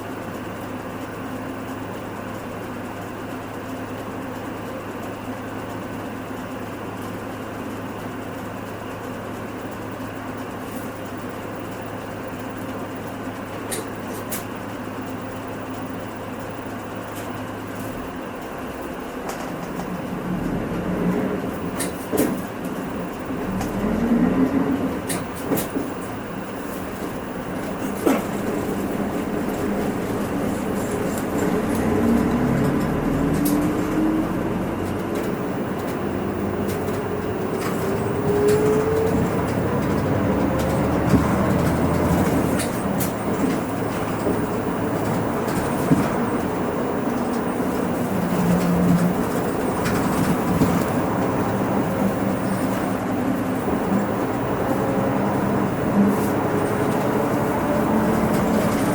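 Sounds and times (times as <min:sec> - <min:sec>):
road and tyre rumble: 0:00.0 - 0:58.9
bus engine rising in pitch: 0:18.1 - 0:58.9.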